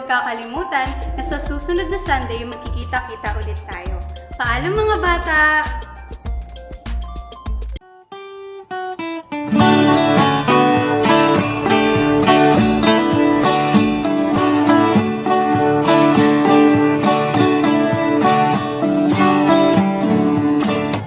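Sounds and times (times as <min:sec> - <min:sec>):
acoustic guitar strumming: 0:00.3 - 0:21.0
acoustic guitar plucked notes: 0:00.4 - 0:21.0.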